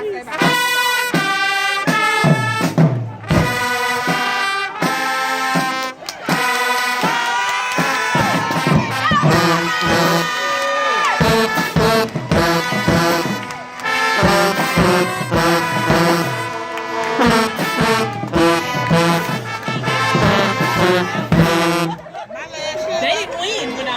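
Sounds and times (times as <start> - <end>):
brass instruments playing tune: 0.0 - 22.3
drum hits: 0.4 - 10.3, 11.2 - 22.1.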